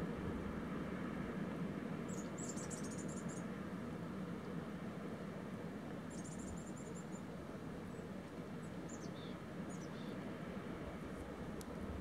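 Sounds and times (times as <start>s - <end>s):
low outdoor rush: 0.0s - 12.0s.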